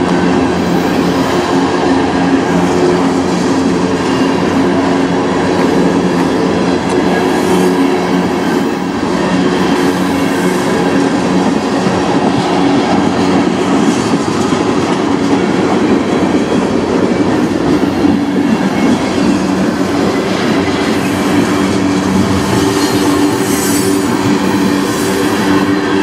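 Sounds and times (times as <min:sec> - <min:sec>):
steel wheels clattering on rail: 0:00.0 - 0:26.0.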